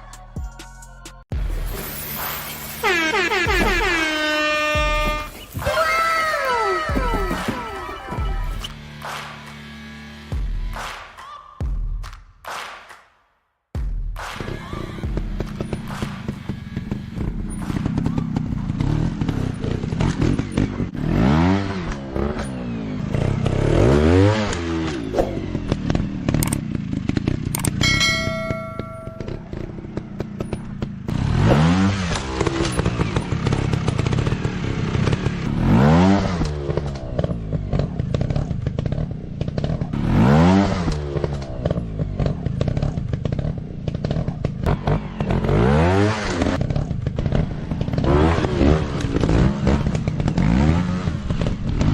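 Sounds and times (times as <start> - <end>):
motorcycle engine revving: 1.3 - 10.9, 14.3 - 51.9
short ringing chime: 27.8 - 29.6.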